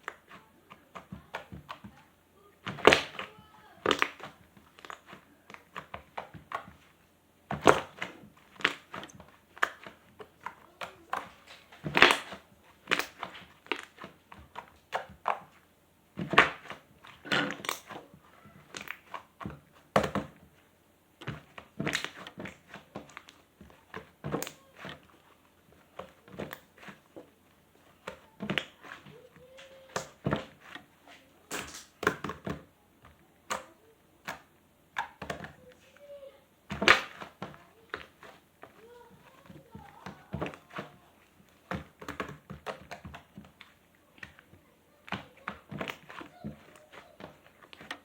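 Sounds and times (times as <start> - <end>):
slime squishing: 0.0 - 48.0.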